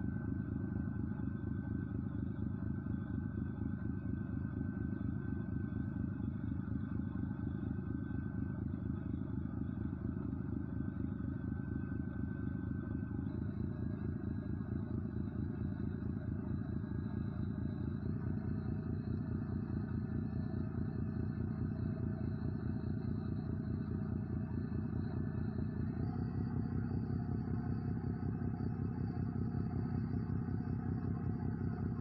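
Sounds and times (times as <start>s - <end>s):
engine running steadily: 0.0s - 32.0s.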